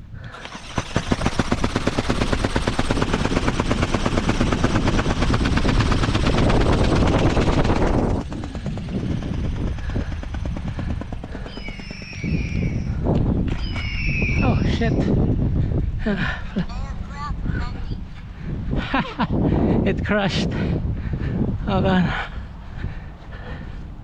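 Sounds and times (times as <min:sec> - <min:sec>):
motor and wings whirring: 0:00.2 - 0:17.1.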